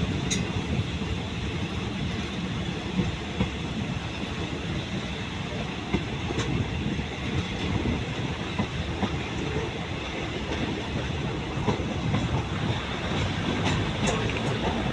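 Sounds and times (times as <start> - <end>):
train rumbling along track: 0.0 - 14.9
wheels knocking over rail joints: 11.6 - 14.9.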